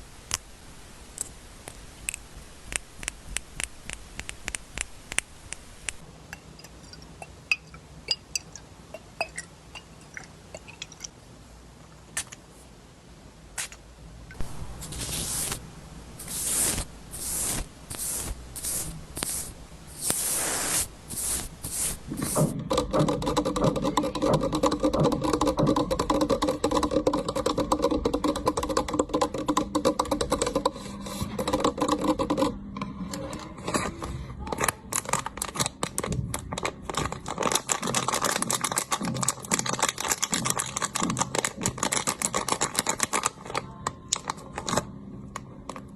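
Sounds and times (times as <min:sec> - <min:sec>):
crackling rub: 0:01.2 - 0:06.0, 0:14.4 - 0:15.6, 0:16.2 - 0:44.8
scratchy brushing strokes: 0:14.7 - 0:15.6, 0:16.2 - 0:22.6.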